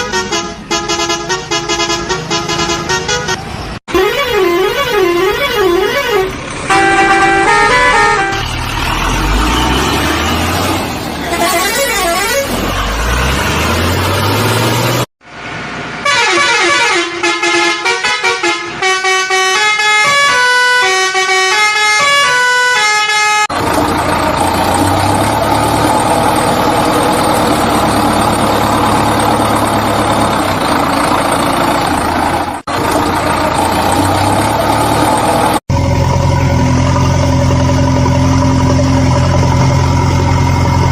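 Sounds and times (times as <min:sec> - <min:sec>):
musical horn playing a tune: 0:00.0 - 0:08.6, 0:11.3 - 0:12.6, 0:16.1 - 0:23.5
vehicle horn toots: 0:00.0 - 0:08.6, 0:11.2 - 0:12.6, 0:16.0 - 0:23.5
engine revving: 0:04.4 - 0:15.1, 0:23.4 - 0:40.9.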